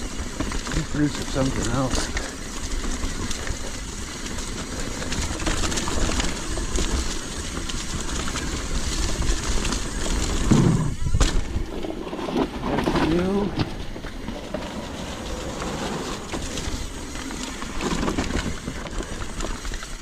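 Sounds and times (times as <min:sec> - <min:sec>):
bike rattling over roots: 0:00.0 - 0:20.0
bike tyres rumbling on dirt: 0:00.0 - 0:20.0.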